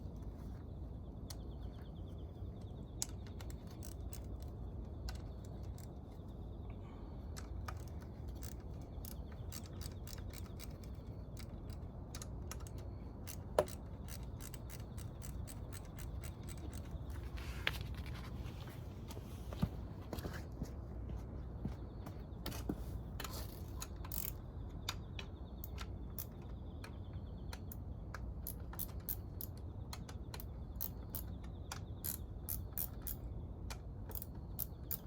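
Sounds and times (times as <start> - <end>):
low steady hum: 0.0 - 35.0
metal tools clicking and tapping: 2.6 - 6.0, 7.4 - 17.0, 23.2 - 35.0.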